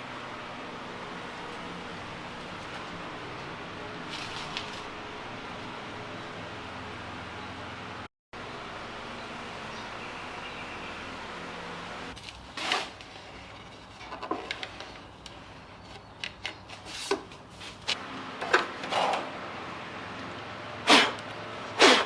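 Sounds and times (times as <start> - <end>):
objects knocking and scraping: 12.5 - 15.5, 16.3 - 19.3.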